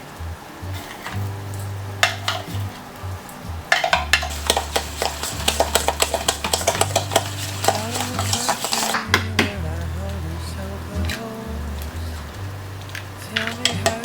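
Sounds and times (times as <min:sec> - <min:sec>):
background music with bass line: 0:00.0 - 0:14.0
utensils clinking against dishes: 0:00.8 - 0:02.9, 0:03.7 - 0:10.1, 0:12.9 - 0:14.0.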